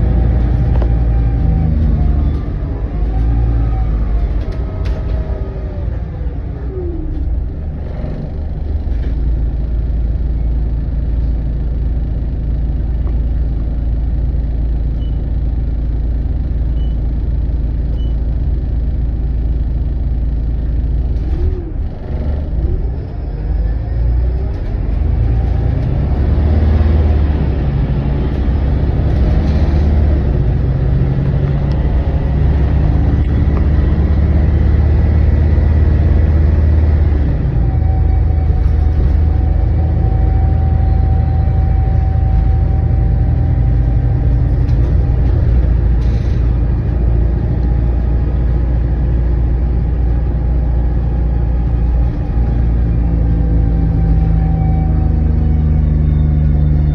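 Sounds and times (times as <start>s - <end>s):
bus diesel engine rumbling: 0.0s - 56.9s.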